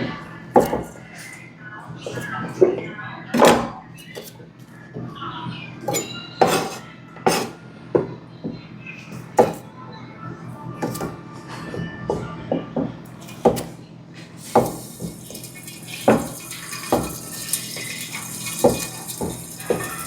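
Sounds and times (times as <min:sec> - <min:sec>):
knife and dishes clattering: 0:05.9 - 0:07.6, 0:13.2 - 0:13.8, 0:14.4 - 0:20.0.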